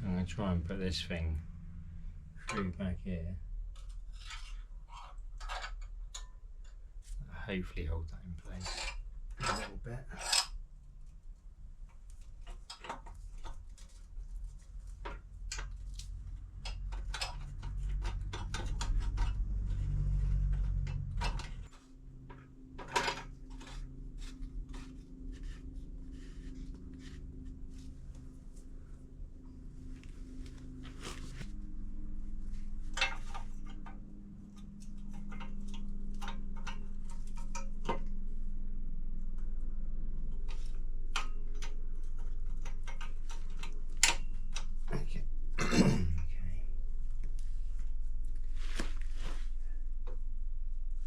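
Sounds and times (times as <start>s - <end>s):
steady low hum: 0.0s - 51.0s
metal tools clinking and knocking: 32.9s - 33.9s.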